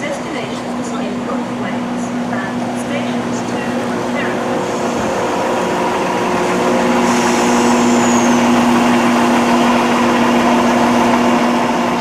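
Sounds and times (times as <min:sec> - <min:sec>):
train engines humming: 0:00.0 - 0:12.0
high squeal falling in pitch: 0:07.2 - 0:08.8.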